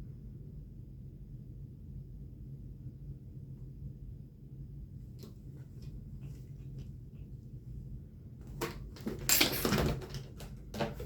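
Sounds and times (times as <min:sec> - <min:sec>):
cat scuffling with toy: 0:08.4 - 0:11.0.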